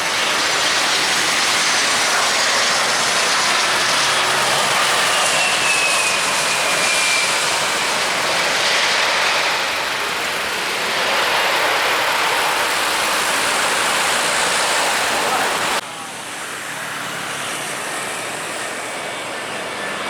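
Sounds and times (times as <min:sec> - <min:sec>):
jet engines passing: 0:00.0 - 0:20.0.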